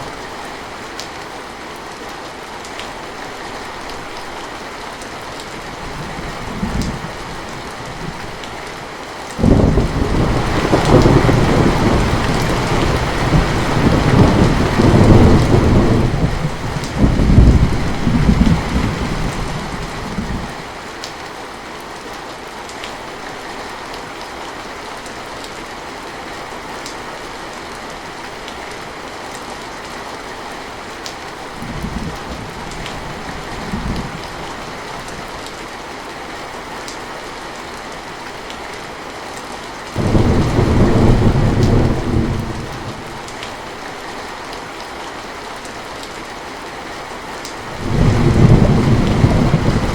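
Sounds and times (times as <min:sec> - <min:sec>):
heavy rain falling: 0:00.0 - 0:49.9
rolling thunder: 0:09.4 - 0:20.5, 0:40.0 - 0:43.4, 0:47.7 - 0:49.9.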